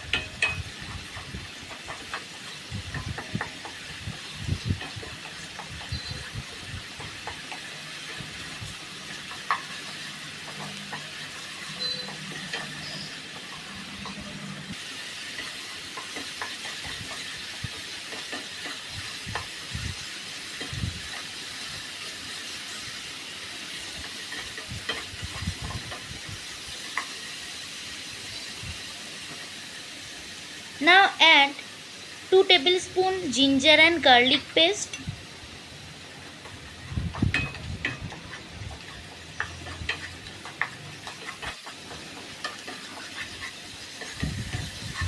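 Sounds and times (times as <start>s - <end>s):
onion paste sizzling in oil: 0.0s - 45.0s
spatula scraping a pan: 36.4s - 45.0s.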